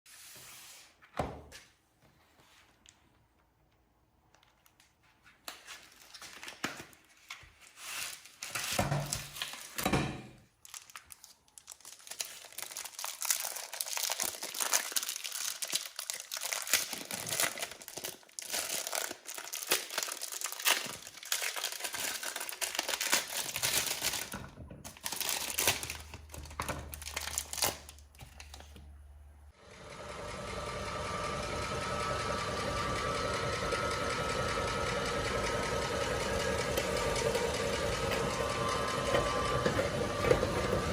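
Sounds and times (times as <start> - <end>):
packaging crinkling and tearing: 4.4 - 9.8, 10.5 - 28.8
meat grinder motor running: 29.6 - 40.9.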